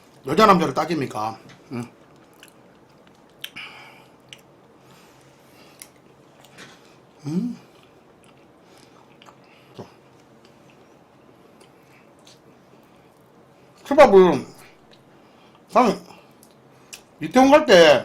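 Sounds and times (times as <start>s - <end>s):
person chewing food: 1.9s - 13.3s
person humming: 7.2s - 7.7s.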